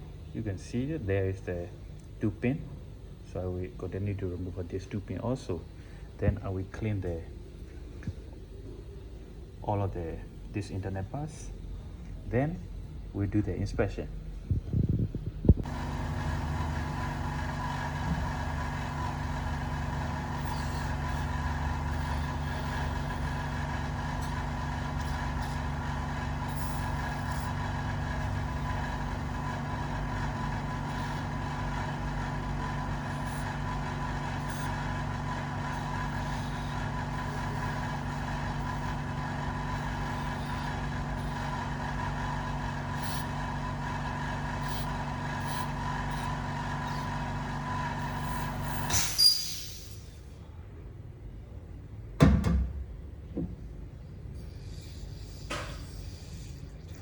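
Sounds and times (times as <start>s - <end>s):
constant machine tones: 14.3s - 49.4s
cleaning machine humming: 15.6s - 49.4s.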